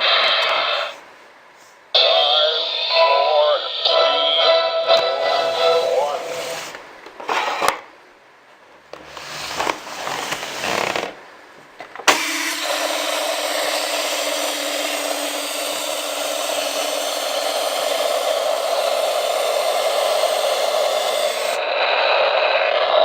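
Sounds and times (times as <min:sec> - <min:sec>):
short noisy bursts: 0:12.1 - 0:21.6.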